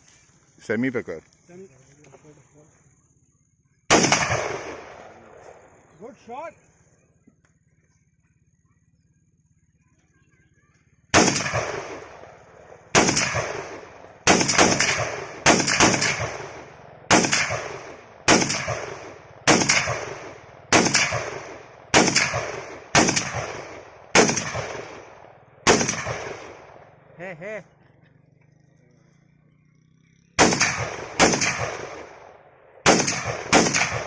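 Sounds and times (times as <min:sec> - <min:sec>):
rifle gunshots echoing: 0:03.9 - 0:05.8, 0:11.1 - 0:27.2, 0:30.4 - 0:34.0.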